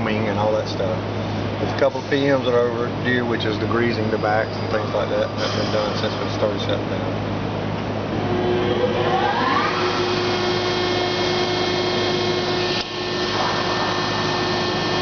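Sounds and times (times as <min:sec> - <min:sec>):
machine hum and hiss: 0:00.0 - 0:15.0
rising machine whine: 0:07.9 - 0:15.0.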